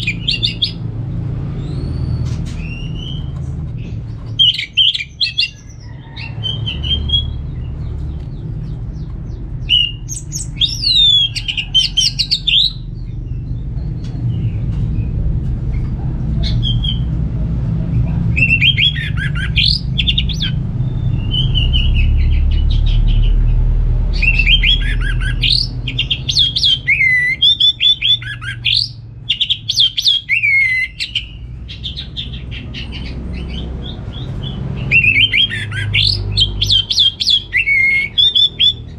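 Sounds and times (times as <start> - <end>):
steady low hum: 0.0 - 35.3
bird singing whistled phrases: 9.7 - 12.8, 34.9 - 38.8.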